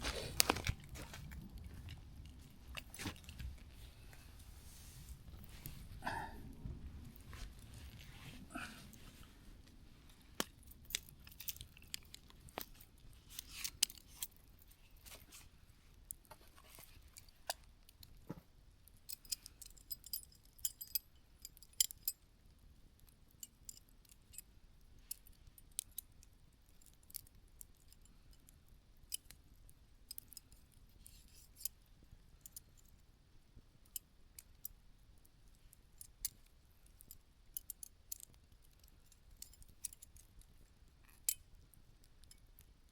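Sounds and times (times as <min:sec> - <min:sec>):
campfire crackling and popping: 0:00.0 - 0:04.2, 0:09.6 - 0:14.6.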